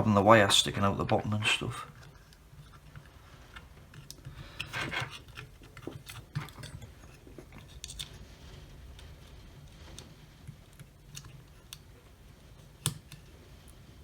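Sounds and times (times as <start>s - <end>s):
plastic parts clicking and rubbing: 0.0s - 13.9s
plastic scrape: 1.4s - 11.9s.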